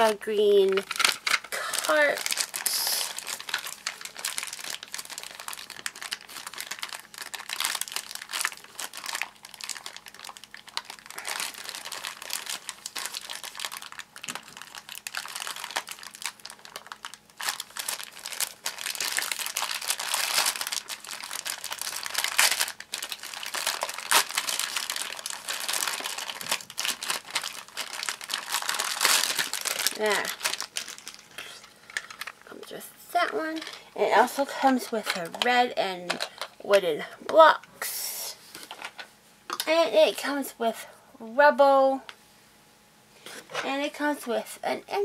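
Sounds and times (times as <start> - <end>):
packaging crinkling and rustling: 0.0 - 32.6, 33.2 - 36.6
packaging tearing: 0.7 - 32.4.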